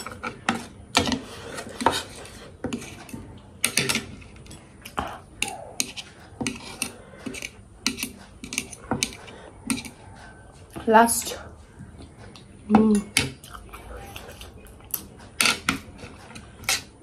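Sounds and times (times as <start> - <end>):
person chewing with smacks: 13.2 - 16.8.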